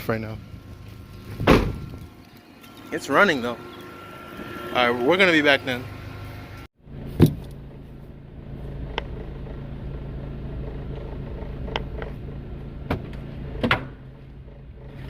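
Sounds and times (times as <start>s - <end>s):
car engine idling rough: 6.8s - 15.0s.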